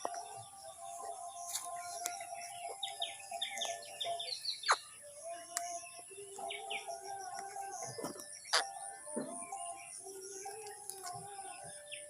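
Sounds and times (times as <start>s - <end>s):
parrot chirping: 2.3s - 5.0s, 8.4s - 9.0s.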